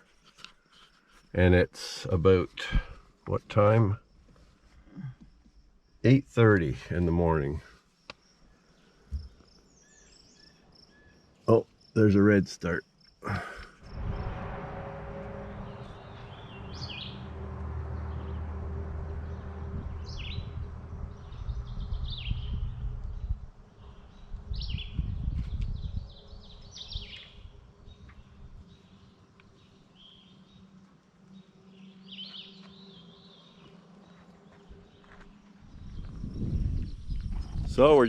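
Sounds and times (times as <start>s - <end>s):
songbirds singing: 3.8s - 13.2s, 17.9s - 38.0s
low engine rumble: 13.3s - 24.5s.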